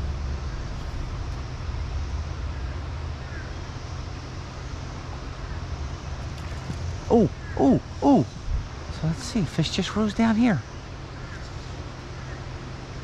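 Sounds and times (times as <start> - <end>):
wind rumble on microphone: 8.2 - 9.0
faint bird chirp: 11.0 - 13.0.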